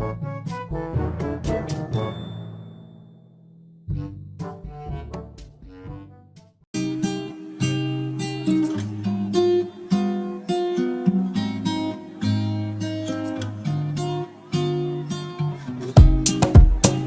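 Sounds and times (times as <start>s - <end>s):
acoustic guitar strumming chords: 6.8s - 17.0s.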